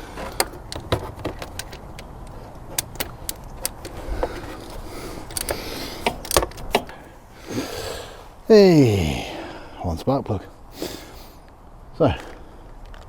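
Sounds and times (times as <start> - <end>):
metal tool clicking: 0.4 - 7.0.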